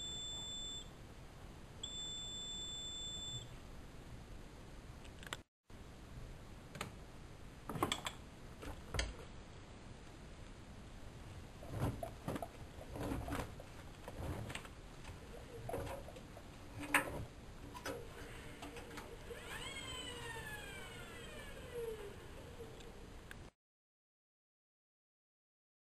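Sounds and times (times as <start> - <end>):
faint steady tone: 0.0 - 4.2.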